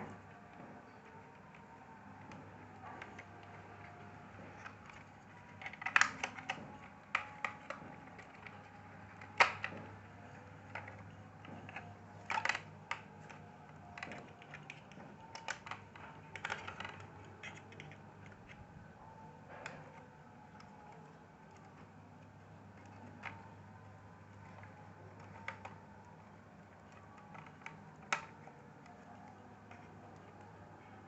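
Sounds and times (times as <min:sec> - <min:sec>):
plastic clicks and taps: 0:00.0 - 0:18.6.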